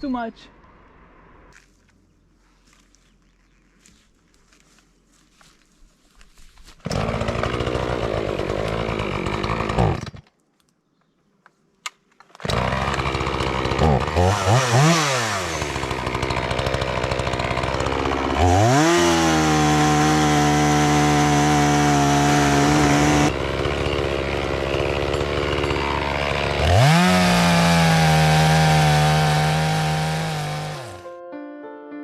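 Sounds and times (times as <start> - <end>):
chainsaw revving: 6.8 - 10.2, 12.4 - 31.0.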